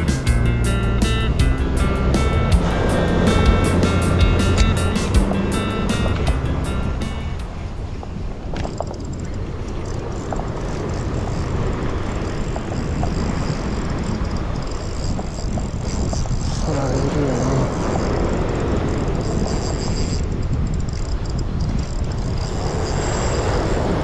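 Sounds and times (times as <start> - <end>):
breaking surf: 0.0 - 15.4, 22.3 - 24.0
wind rumbling on microphone: 0.0 - 24.0.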